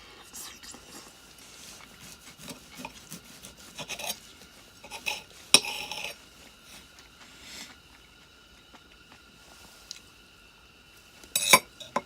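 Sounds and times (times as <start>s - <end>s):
utensils clinking on cookware: 3.8s - 4.2s, 4.8s - 6.2s, 11.3s - 12.0s.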